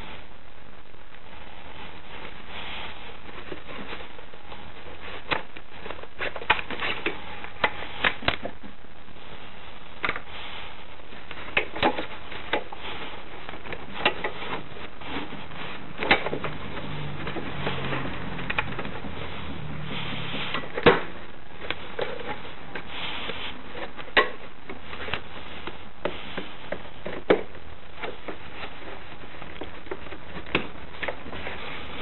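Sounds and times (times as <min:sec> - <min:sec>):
steady hiss: 0:00.0 - 0:32.0.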